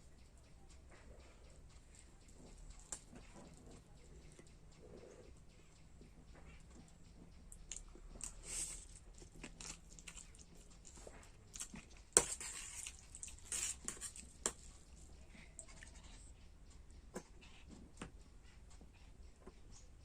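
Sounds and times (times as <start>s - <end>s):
person chewing: 7.7s - 15.0s.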